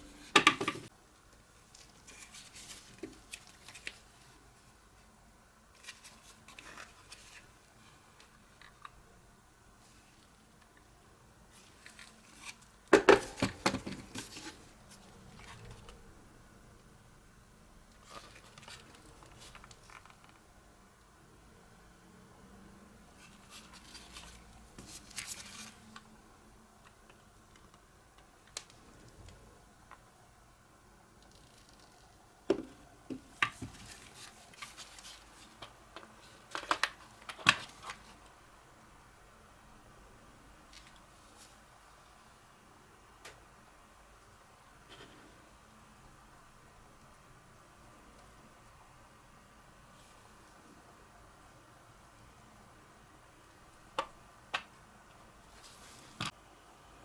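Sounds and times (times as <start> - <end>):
plastic parts clicking and knocking: 0.3 - 0.9, 35.6 - 38.0, 53.9 - 54.8.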